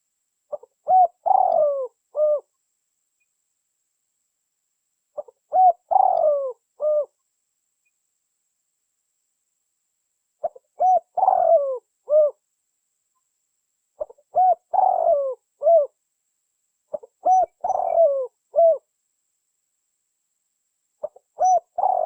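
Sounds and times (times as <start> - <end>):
dove cooing: 0.5 - 2.5, 5.2 - 7.2, 10.4 - 12.4, 14.0 - 16.0, 16.9 - 18.9, 21.0 - 22.0.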